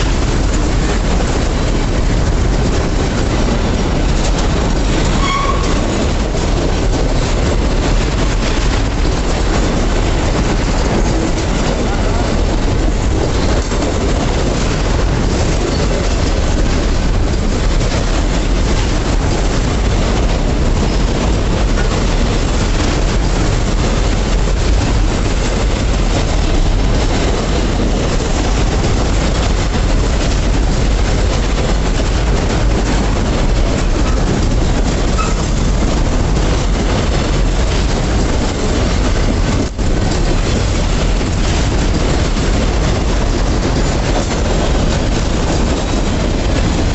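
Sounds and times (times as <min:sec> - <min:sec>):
freight train passing: 0:00.0 - 0:46.9.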